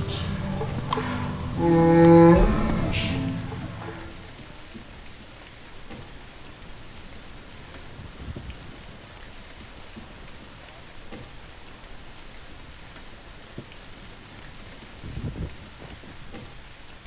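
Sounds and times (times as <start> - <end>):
dull low thump: 0.0 - 4.3
steady rain falling: 0.0 - 17.0.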